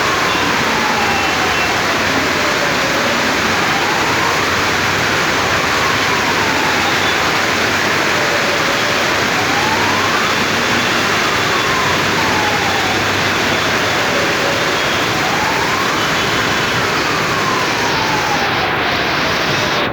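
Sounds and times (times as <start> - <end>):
faint wailing siren: 0.0 - 19.9
steady rain hiss: 0.0 - 19.9.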